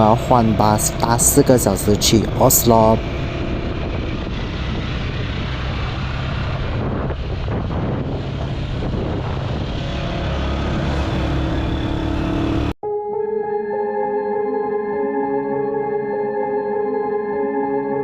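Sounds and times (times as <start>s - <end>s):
motorized tricycle engine rumble: 0.0s - 12.8s
road and wind noise: 0.0s - 12.8s.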